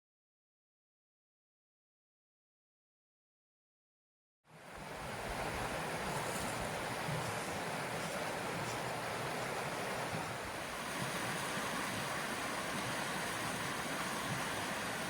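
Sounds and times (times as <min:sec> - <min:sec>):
creek water rushing: 0:04.5 - 0:15.0.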